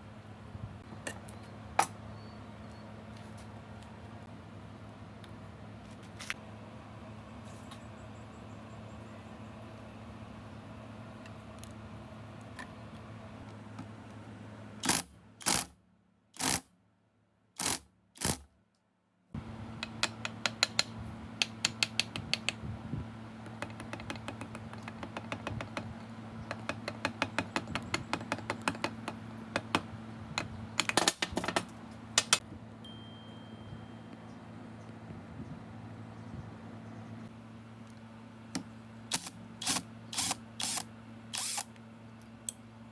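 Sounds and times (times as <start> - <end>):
low electrical hum: 0.0 - 42.9
hand tool clicks and taps on metal: 19.8 - 22.6, 23.4 - 25.9, 26.5 - 29.8.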